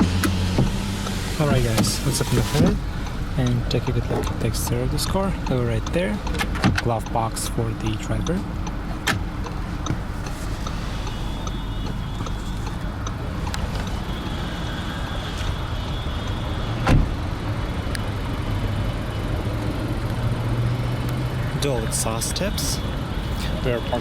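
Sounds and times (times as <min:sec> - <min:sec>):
sharp thump: 0:00.0 - 0:02.8
car engine idling: 0:00.0 - 0:24.0.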